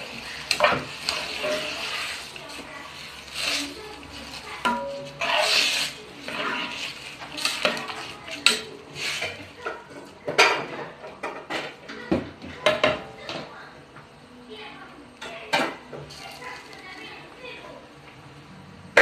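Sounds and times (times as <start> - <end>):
metal utensil scraping cooking pot: 0.0 - 10.6.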